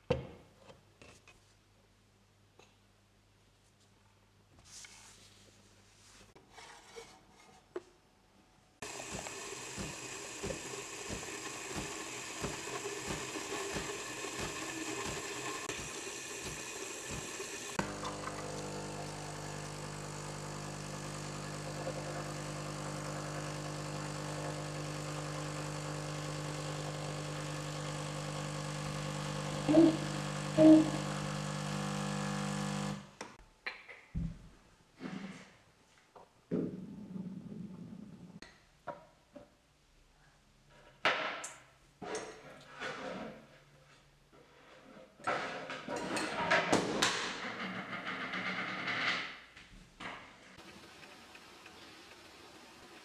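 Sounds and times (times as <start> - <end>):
motor-driven machine humming: 8.8 - 33.2.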